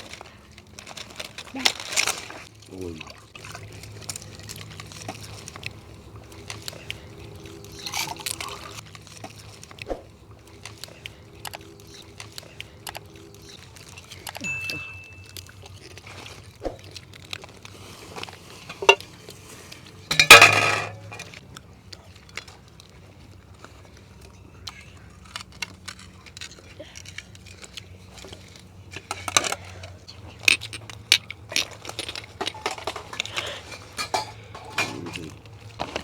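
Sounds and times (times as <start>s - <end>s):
dishes and utensils clinking: 14.3s - 15.8s, 18.2s - 21.4s, 31.6s - 35.4s.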